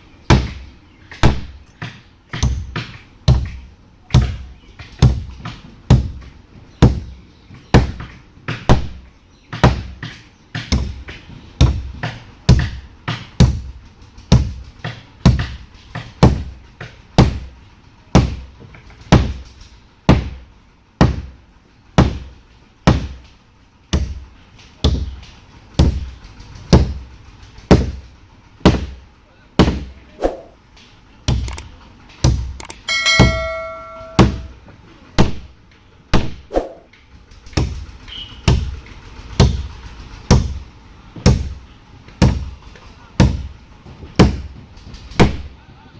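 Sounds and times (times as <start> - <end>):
hammer blows ringing: 32.7 - 34.6.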